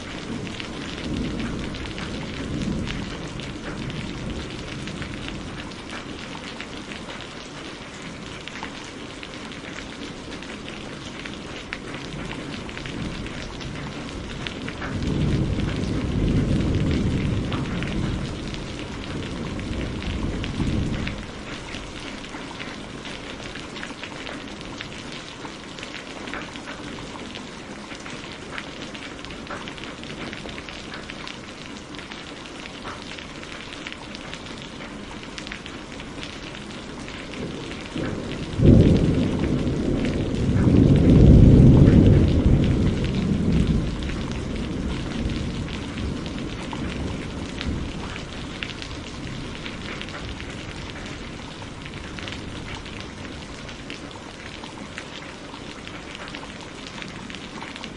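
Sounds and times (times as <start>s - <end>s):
steady rain falling: 0.0s - 57.9s
thunderclap rolling into rumble: 0.1s - 6.1s, 12.0s - 22.0s, 37.0s - 53.6s.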